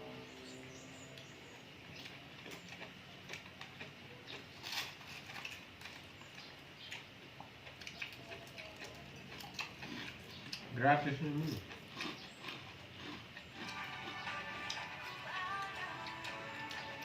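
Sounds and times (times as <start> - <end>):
wet chewing clicks and smacks: 1.9 - 15.0.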